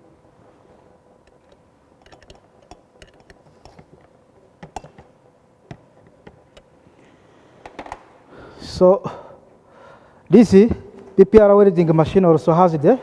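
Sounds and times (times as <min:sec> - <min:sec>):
metal parts clicking and tapping: 0:02.0 - 0:03.8.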